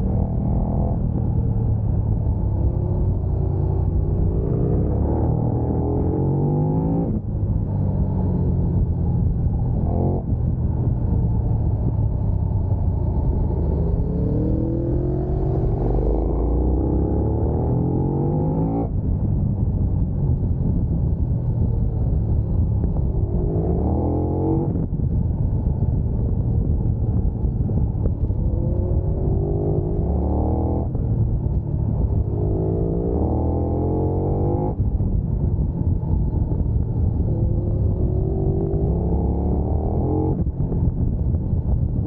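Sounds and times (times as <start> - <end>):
motorcycle engine revving: 12.4 - 19.0, 27.0 - 35.1, 36.0 - 41.2.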